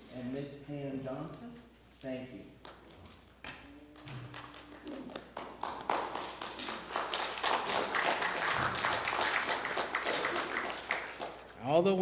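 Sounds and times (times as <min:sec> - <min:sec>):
congregation applauding: 0:04.3 - 0:11.6.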